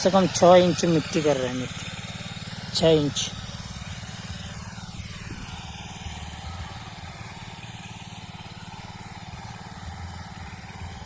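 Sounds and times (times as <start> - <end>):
small petrol engine running: 0.0 - 11.0.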